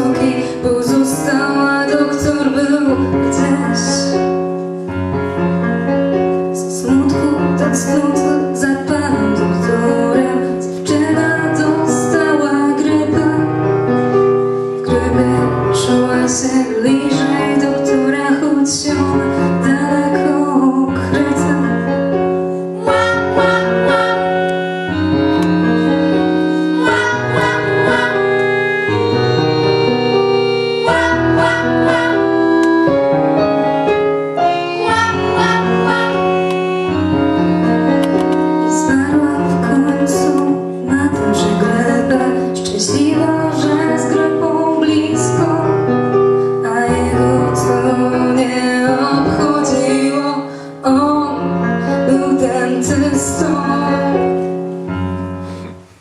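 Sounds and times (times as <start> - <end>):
keyboard accompaniment: 0.0 - 56.0
bass line: 22.8 - 34.0
voices singing: 26.7 - 28.6, 30.8 - 32.8.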